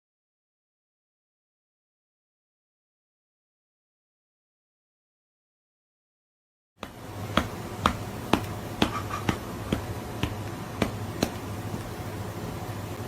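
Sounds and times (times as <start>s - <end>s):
steady low hum: 6.8s - 13.0s.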